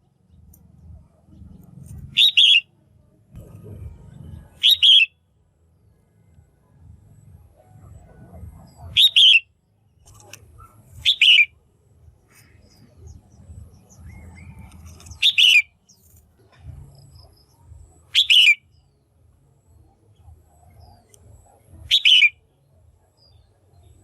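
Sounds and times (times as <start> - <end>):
bird calling: 2.0 - 2.7, 4.5 - 5.1, 8.5 - 11.6, 12.2 - 16.1, 17.2 - 18.8, 20.8 - 22.4.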